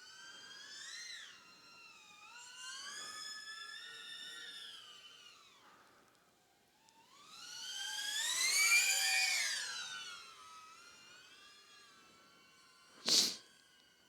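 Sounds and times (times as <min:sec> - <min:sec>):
short burst of noise: 0:13.0 - 0:13.4.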